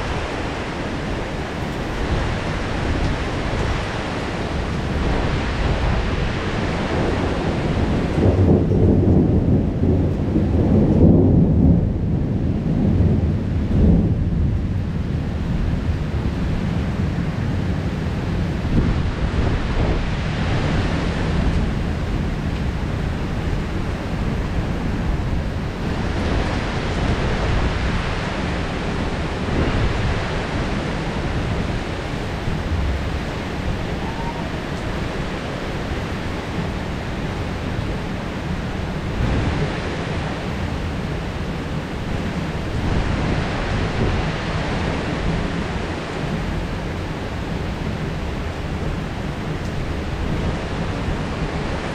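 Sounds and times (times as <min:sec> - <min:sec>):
heavy rain hiss: 0:00.0 - 0:12.2, 0:13.8 - 0:51.9
deep low rumble: 0:31.1 - 0:36.8.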